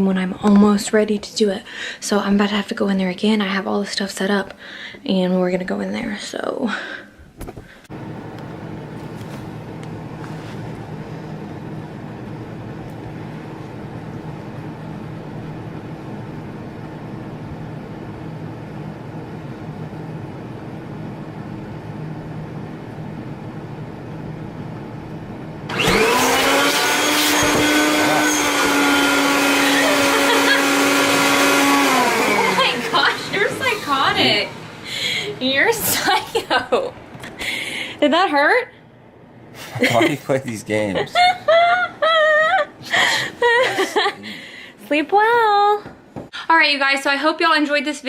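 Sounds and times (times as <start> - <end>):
vacuum cleaner whining: 7.9 - 18.4, 23.7 - 37.6
steady low hum: 31.1 - 47.6.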